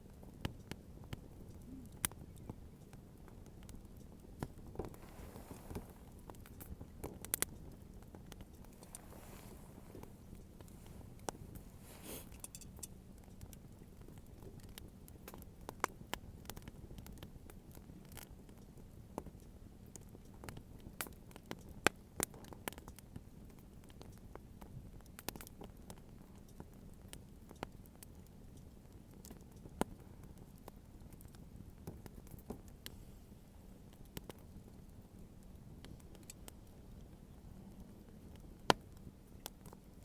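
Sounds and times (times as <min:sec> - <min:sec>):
bonfire crackling: 0:00.0 - 0:40.0.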